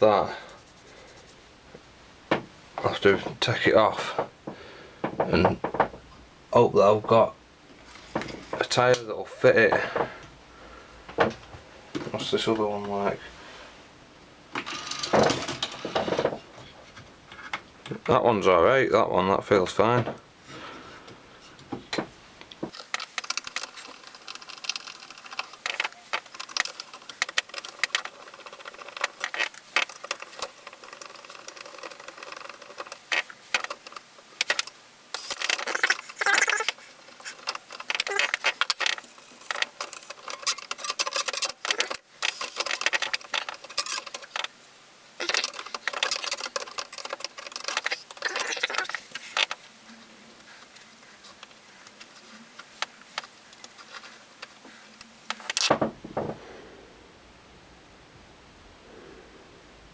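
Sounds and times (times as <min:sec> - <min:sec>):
clicks scrapes and rattles of parts: 0:22.0 - 0:44.6, 0:45.2 - 0:49.6, 0:50.4 - 0:55.8.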